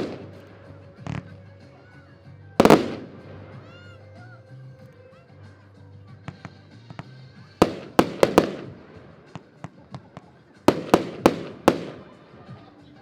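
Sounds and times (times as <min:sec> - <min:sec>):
fireworks crackles and pops: 0:00.0 - 0:01.3, 0:06.3 - 0:12.2
fireworks bangs echoing: 0:00.0 - 0:01.4, 0:02.6 - 0:04.0, 0:06.3 - 0:12.5.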